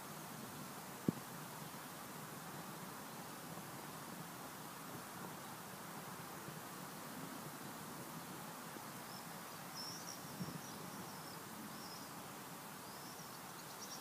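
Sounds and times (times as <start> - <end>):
steady low hiss: 0.0 - 14.0
small bird chirping: 9.1 - 12.2, 12.8 - 14.0.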